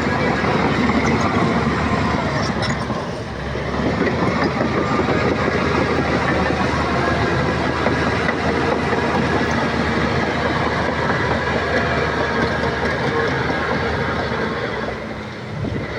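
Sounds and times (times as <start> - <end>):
bulldozer diesel engine: 0.0 - 15.9
steel tracks clattering: 0.0 - 15.9.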